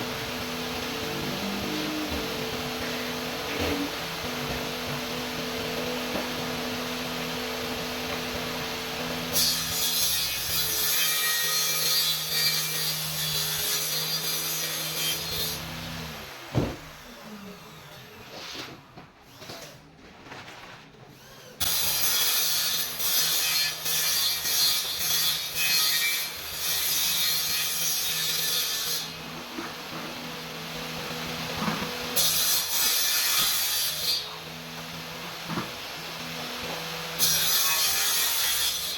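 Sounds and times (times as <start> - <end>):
saw cutting laminate sheet: 0.0 - 20.0, 20.9 - 38.9.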